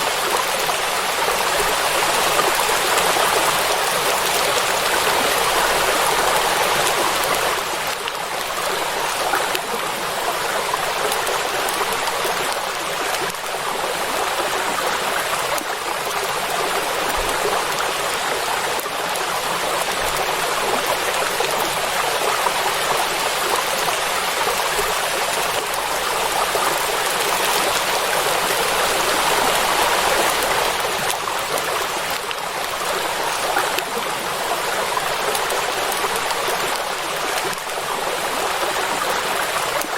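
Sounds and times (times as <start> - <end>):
rain falling on water: 0.0 - 39.9.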